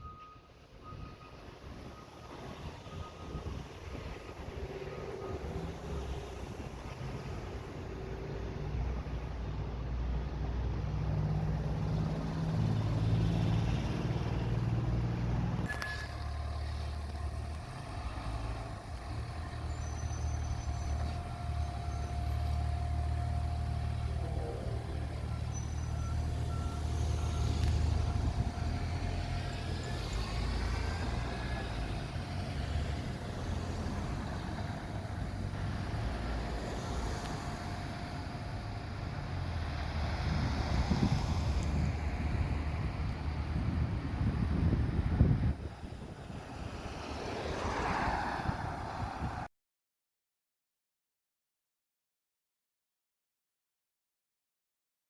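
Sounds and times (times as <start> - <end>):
diesel engine running: 0.9 - 47.1
steady high tone: 15.6 - 39.8.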